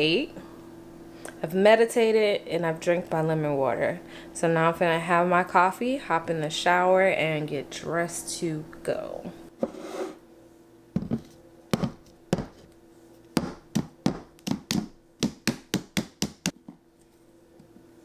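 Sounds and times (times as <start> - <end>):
fingernails tapping on hard object: 13.4 - 16.6.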